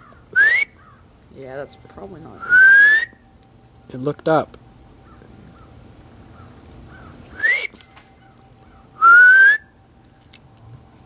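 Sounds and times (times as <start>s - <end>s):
person whistling rising notes: 0.4s - 0.8s, 2.4s - 3.2s, 7.4s - 7.8s, 9.0s - 9.7s.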